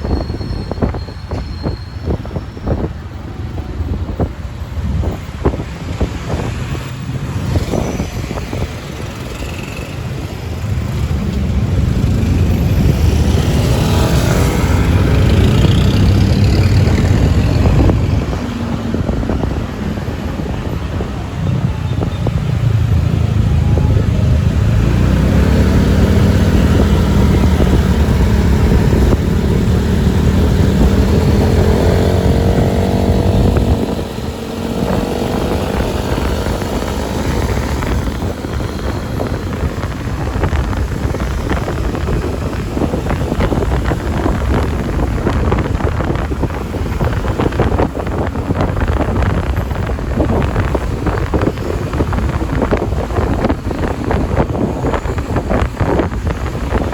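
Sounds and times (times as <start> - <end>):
motorcycle engine rumble: 0.0 - 56.9.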